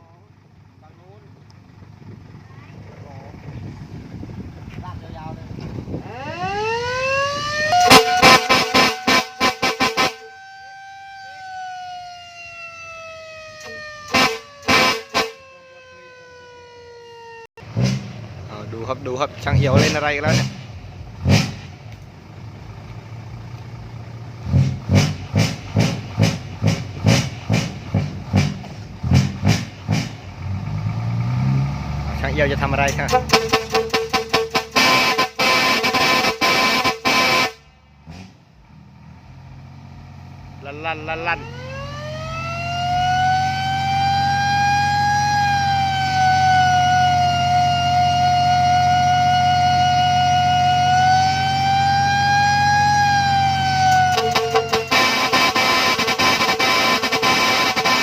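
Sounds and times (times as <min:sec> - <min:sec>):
engine idling: 0:00.0 - 0:10.9, 0:17.7 - 0:31.2, 0:32.2 - 0:44.0
truck horn short blasts: 0:07.8 - 0:10.3, 0:14.0 - 0:15.4, 0:32.9 - 0:37.7, 0:54.0 - 0:58.0.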